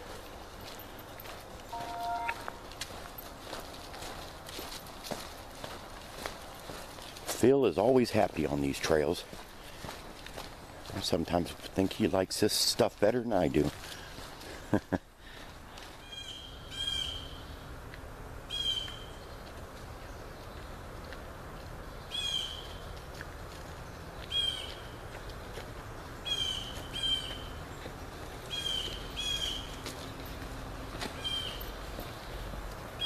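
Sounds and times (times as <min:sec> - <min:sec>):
outdoor background hiss: 0:00.0 - 0:33.0
bird calling: 0:22.1 - 0:22.8, 0:24.3 - 0:25.0, 0:26.2 - 0:27.8, 0:28.5 - 0:29.8, 0:31.2 - 0:31.7.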